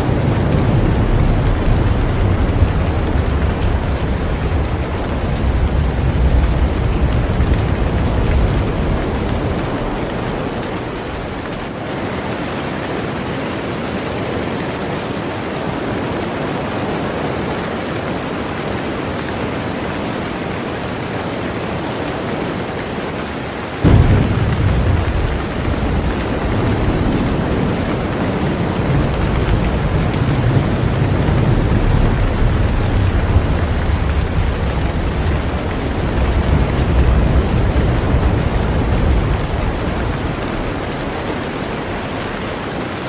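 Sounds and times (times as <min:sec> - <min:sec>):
thunder rumbling: 0:00.0 - 0:11.8, 0:23.8 - 0:43.0
heavy rain on a boat: 0:00.0 - 0:43.0.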